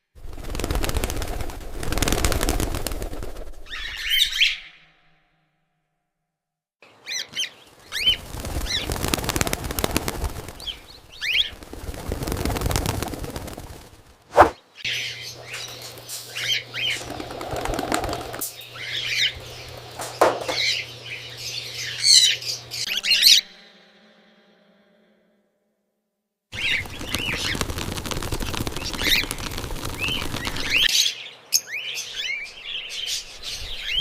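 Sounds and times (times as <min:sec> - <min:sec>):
wings flapping: 0:00.2 - 0:04.5, 0:07.3 - 0:14.6, 0:15.4 - 0:21.1, 0:26.5 - 0:30.9
cockatiels chirping: 0:07.0 - 0:08.9, 0:10.6 - 0:11.6, 0:26.6 - 0:27.6, 0:28.8 - 0:34.0.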